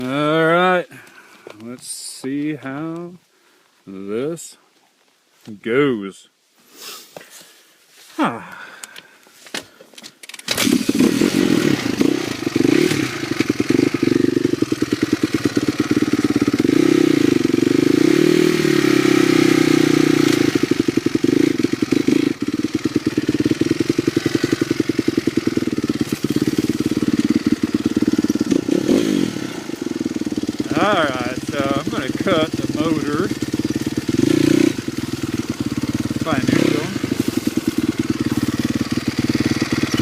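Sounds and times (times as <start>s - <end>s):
dirt bike engine running: 10.5s - 40.0s.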